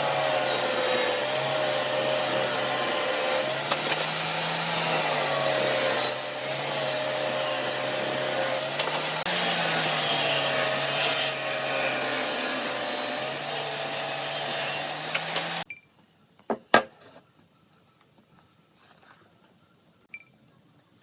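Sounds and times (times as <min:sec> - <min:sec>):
power tool working wood: 0:00.0 - 0:15.7.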